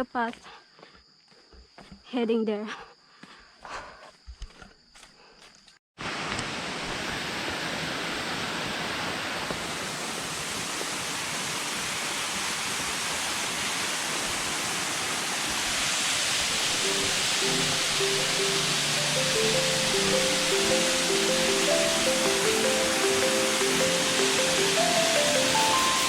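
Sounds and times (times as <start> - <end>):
footsteps on a trail: 0.3 - 2.0, 3.1 - 5.7
waterfall rushing: 6.0 - 26.0.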